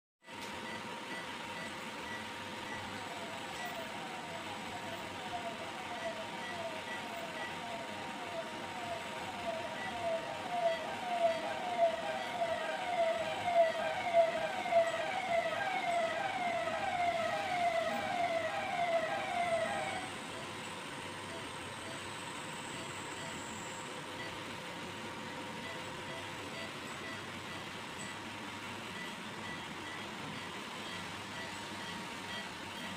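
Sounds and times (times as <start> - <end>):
electronic siren wailing: 1.6 - 20.6.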